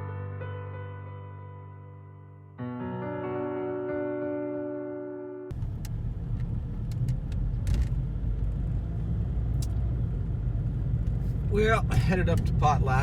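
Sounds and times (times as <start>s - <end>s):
piano music: 0.0s - 5.5s
car engine and road noise: 5.5s - 13.0s.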